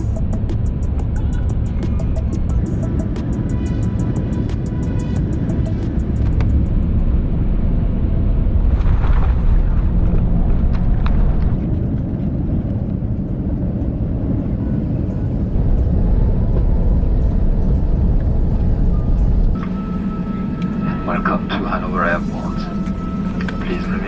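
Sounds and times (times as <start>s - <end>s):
airplane landing rumble in cabin: 0.0s - 24.0s.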